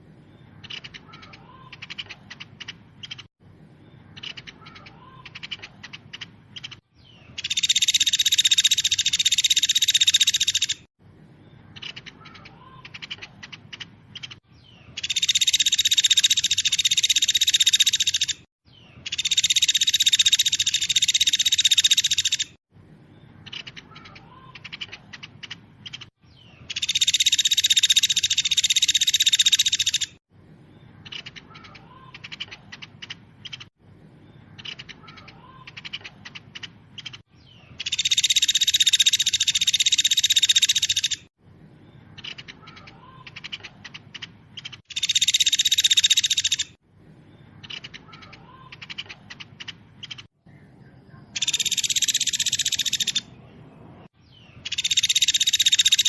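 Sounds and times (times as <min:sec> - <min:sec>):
quick bird chirps: 0:00.2 - 0:10.9, 0:11.6 - 0:22.6, 0:23.3 - 0:30.2, 0:41.9 - 0:46.8, 0:47.4 - 0:56.0
bird trilling in high bursts: 0:00.6 - 0:03.4, 0:04.1 - 0:10.9, 0:11.7 - 0:22.6, 0:23.4 - 0:30.2, 0:31.0 - 0:33.8, 0:34.5 - 0:41.3, 0:42.2 - 0:46.8, 0:47.6 - 0:50.4, 0:51.3 - 0:53.4, 0:54.6 - 0:56.0.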